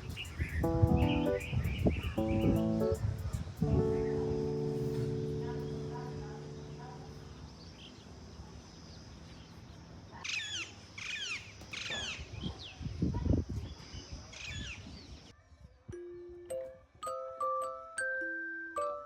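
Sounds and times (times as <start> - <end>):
birds calling: 0.0 - 8.1
steady high hiss: 0.0 - 10.0.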